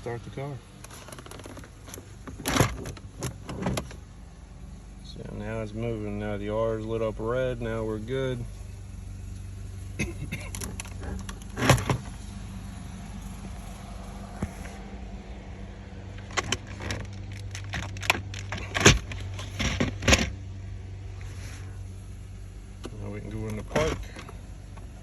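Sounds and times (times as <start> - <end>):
gear shifter clicks and clunks: 0.0 - 4.1, 10.0 - 14.9, 16.0 - 20.4, 22.8 - 25.0
steady low hum: 0.0 - 25.0.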